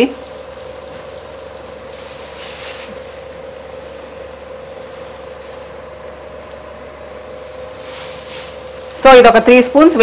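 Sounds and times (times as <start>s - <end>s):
chicken sizzling in a pan: 0.0s - 6.4s
steady hum: 0.0s - 10.0s.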